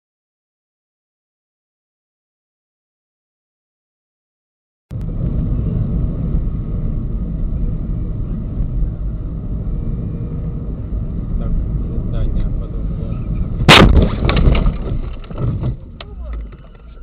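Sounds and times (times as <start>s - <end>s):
car road and engine rumble: 4.9s - 17.0s.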